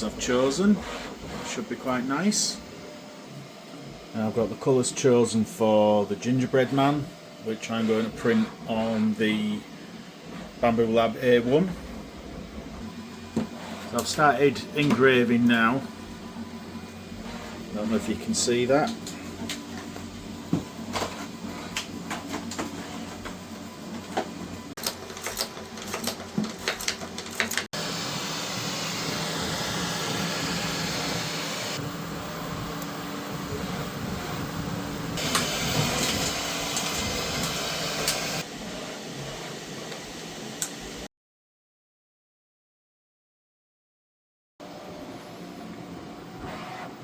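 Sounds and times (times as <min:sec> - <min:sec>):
laser engraver humming: 0:00.0 - 0:24.7, 0:27.8 - 0:38.8
laser engraver whirring: 0:00.0 - 0:39.4.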